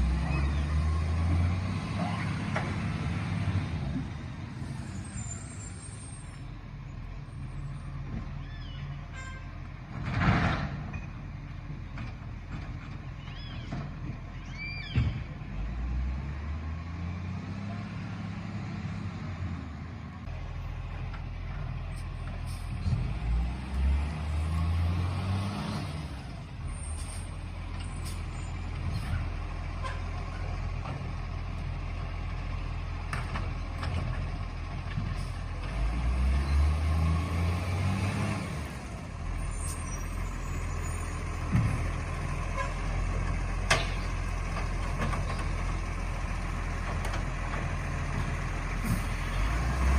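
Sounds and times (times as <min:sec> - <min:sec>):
garbage truck engine revving: 0:00.0 - 0:05.3, 0:22.2 - 0:29.8, 0:30.6 - 0:49.9.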